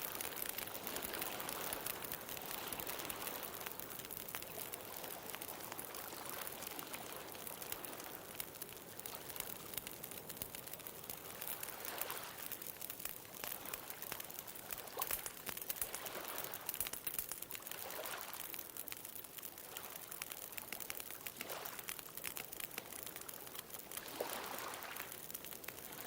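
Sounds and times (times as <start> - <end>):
bonfire crackling: 0.0 - 26.0
ocean waves: 24.1 - 25.1.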